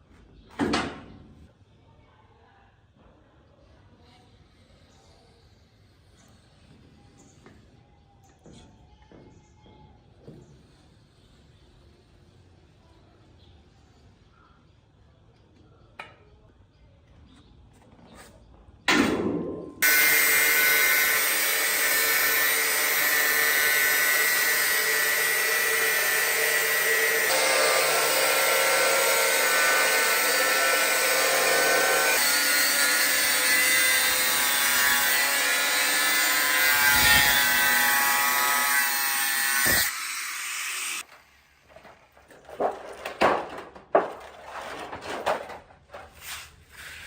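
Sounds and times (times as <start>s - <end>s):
power tool running: 19.8s - 41.4s.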